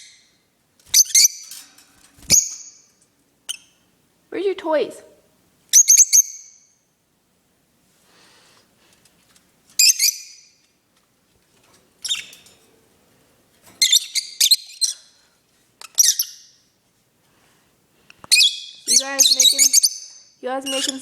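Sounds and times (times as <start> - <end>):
parrots chirping: 0.9 - 1.6, 2.2 - 3.9, 5.7 - 6.8, 9.8 - 10.6, 12.0 - 12.4, 13.8 - 15.2, 15.8 - 16.6, 18.3 - 21.0.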